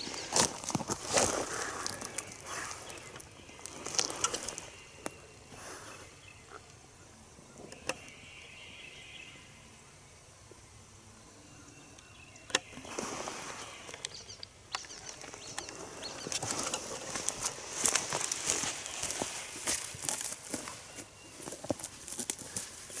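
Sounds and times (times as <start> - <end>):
rustling with small crackles: 0.0 - 6.8, 12.7 - 23.0.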